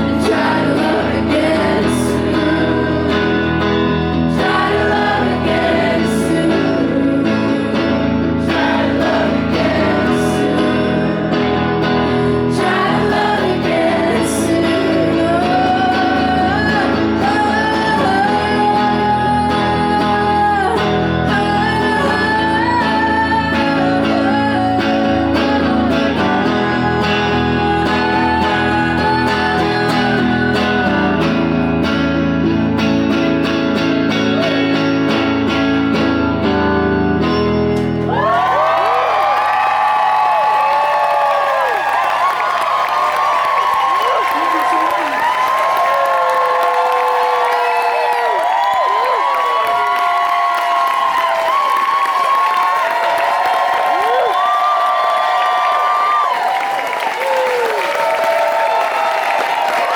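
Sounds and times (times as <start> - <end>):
woman singing: 0.0 - 31.6
electric guitar: 0.0 - 59.9.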